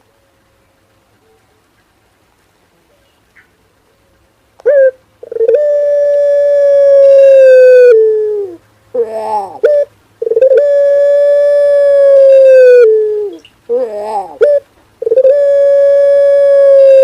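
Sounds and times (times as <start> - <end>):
dove cooing: 4.6 - 17.0.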